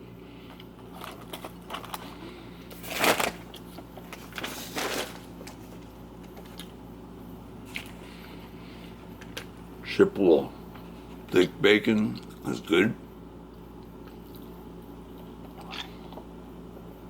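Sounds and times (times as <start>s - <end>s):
paper wrapper rustling: 0.9s - 5.9s
loud crinkling rustles: 0.9s - 6.5s.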